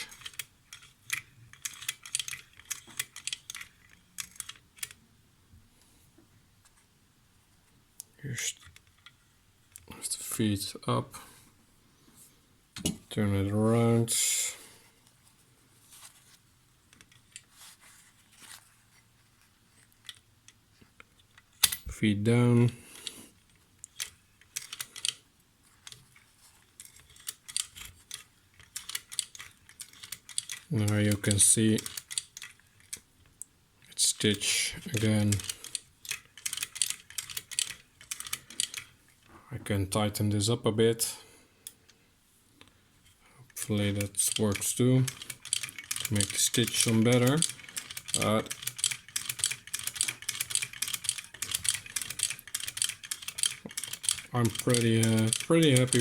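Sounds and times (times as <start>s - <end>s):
toy sewing machine clicking: 0.0s - 5.0s, 23.9s - 25.2s, 26.8s - 33.0s, 34.9s - 39.0s, 43.6s - 56.0s.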